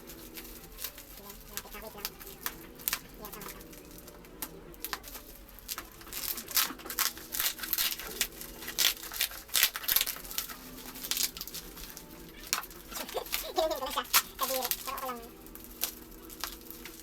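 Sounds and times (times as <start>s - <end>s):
packaging crinkling and rustling: 0.0s - 17.0s
packaging tearing: 0.0s - 17.0s.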